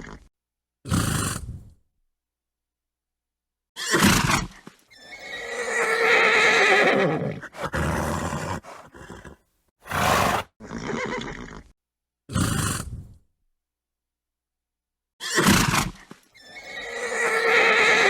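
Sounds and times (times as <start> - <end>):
horse whinnying: 4.9 - 11.7, 16.4 - 18.0
horse snorting: 7.3 - 11.6.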